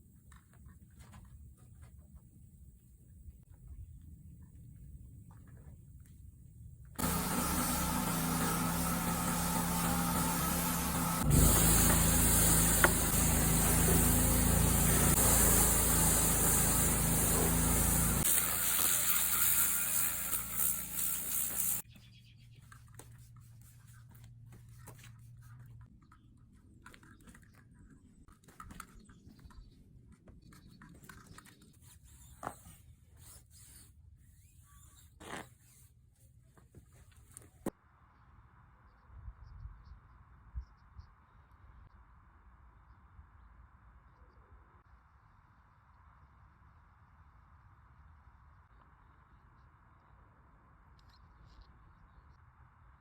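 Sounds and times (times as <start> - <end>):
machine running with hiss and hum: 7.0 - 21.8.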